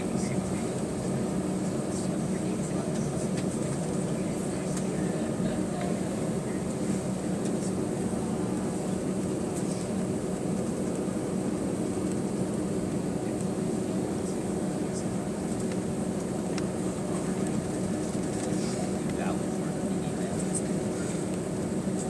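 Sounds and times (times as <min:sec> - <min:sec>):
constant low hum: 0:00.0 - 0:22.0
airplane cabin rushing noise: 0:16.2 - 0:22.0.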